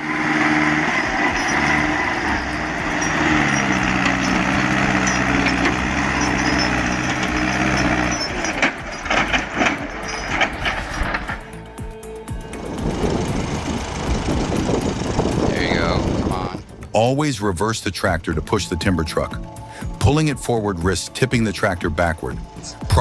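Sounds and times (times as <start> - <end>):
tractor engine under load: 0.0 - 23.0
knocks and clatters: 0.4 - 13.8.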